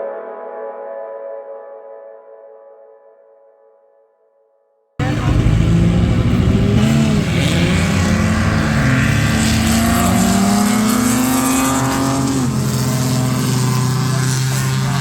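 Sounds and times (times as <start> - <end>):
race car engine under load: 5.0 - 15.0.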